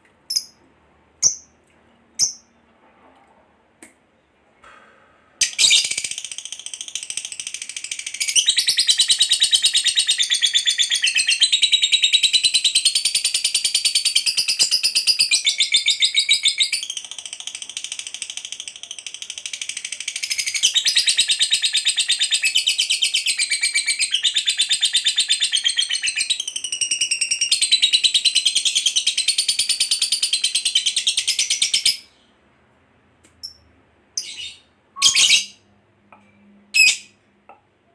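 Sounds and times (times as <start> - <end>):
lovebird shrill chattering trill: 34.2 - 35.6.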